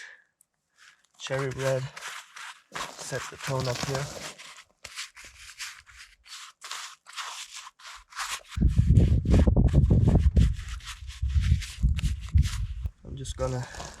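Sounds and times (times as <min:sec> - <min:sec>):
paintbrush rubbing on canvas: 0:01.3 - 0:12.9
wind rumble on microphone: 0:08.6 - 0:13.4.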